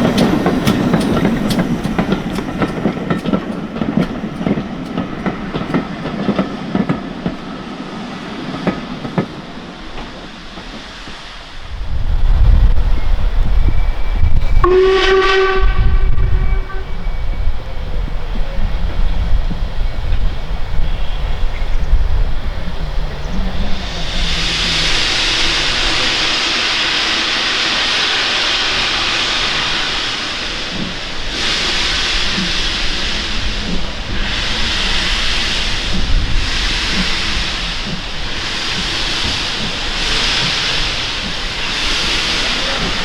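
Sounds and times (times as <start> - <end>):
steam hissing: 0.0 - 43.0
steam locomotive rumbling: 0.0 - 43.0
locomotive whistle blast: 13.6 - 17.6, 23.9 - 35.9.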